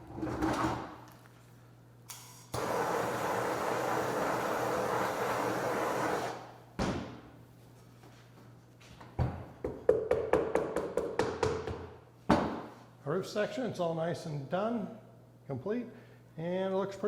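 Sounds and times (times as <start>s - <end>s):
torch hissing: 2.6s - 6.5s.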